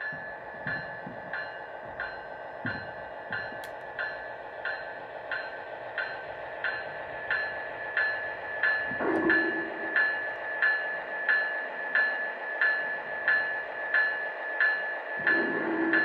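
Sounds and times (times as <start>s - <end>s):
low tone: 0.0s - 11.1s
high whine: 0.0s - 14.0s, 15.2s - 16.0s
rhythmic thump from small speaker: 0.0s - 16.0s.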